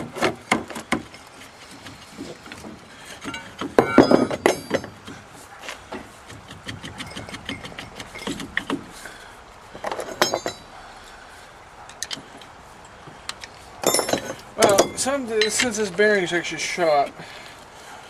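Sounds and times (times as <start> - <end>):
metal tools clinking and knocking: 3.2 - 5.0, 6.8 - 8.7, 9.8 - 10.8, 13.3 - 15.9.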